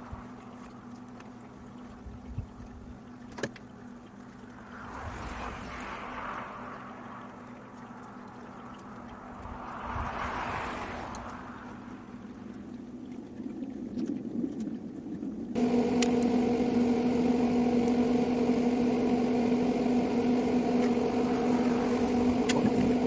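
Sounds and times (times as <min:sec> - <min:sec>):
vehicles passing by: 0:00.0 - 0:13.6, 0:19.0 - 0:23.0
steady low hum: 0:15.1 - 0:23.0.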